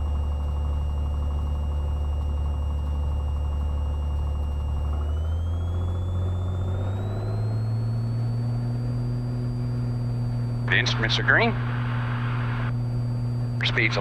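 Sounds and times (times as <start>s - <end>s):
propeller plane engine revving: 0.0s - 14.0s.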